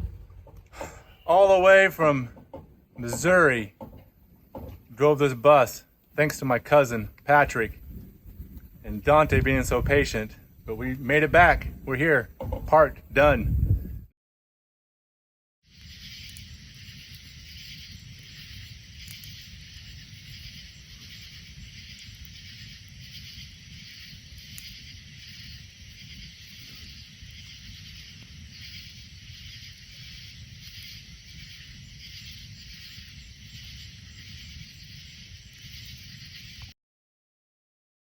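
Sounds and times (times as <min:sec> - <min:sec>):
low rumble: 0:00.0 - 0:03.0
insect chorus buzzing: 0:15.7 - 0:36.7.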